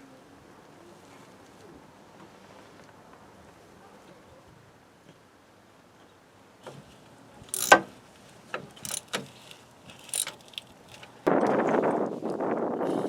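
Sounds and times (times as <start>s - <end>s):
metal tools clinking and knocking: 7.5s - 7.9s, 8.7s - 9.2s, 9.9s - 11.2s.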